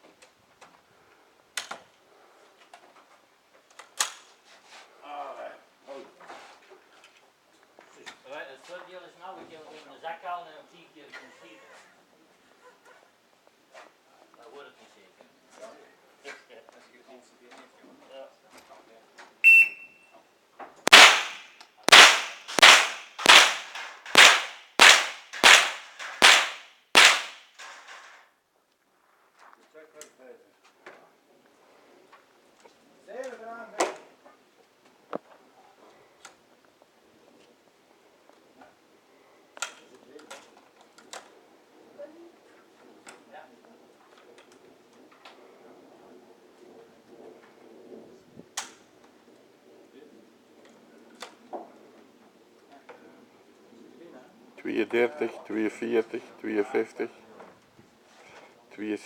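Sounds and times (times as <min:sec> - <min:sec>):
shot timer beep: 0:19.4 - 0:20.0
rifle shots: 0:20.9 - 0:28.0.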